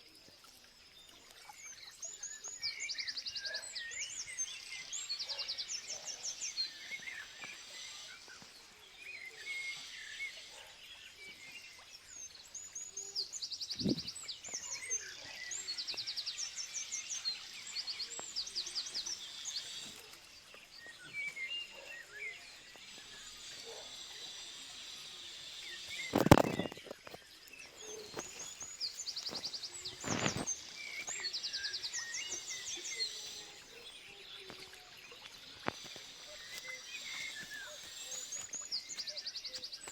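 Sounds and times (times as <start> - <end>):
songbirds trilling and chirping: 0.0 - 39.9
faint background hiss: 27.2 - 39.9.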